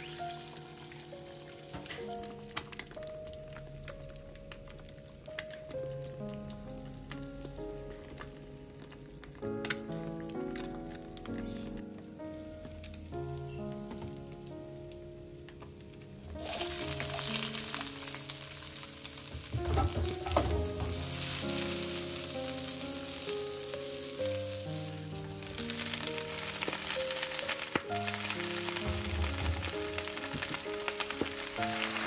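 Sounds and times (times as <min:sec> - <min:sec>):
food sizzling in hot oil: 0:00.0 - 0:07.8, 0:16.4 - 0:32.0.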